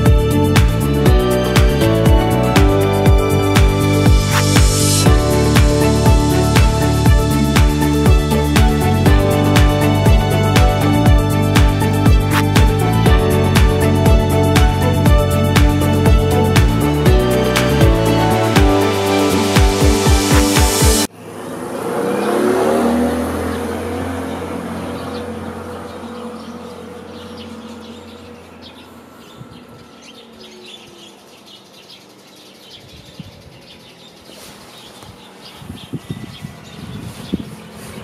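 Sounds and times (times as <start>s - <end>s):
electronic music: 0.0s - 21.1s
birds chirping: 0.0s - 38.0s
car passing: 17.2s - 30.8s.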